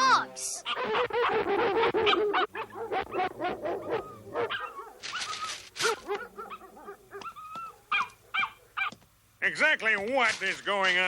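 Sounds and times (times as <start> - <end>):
cartoon dogs barking and yipping: 0.0 - 9.0.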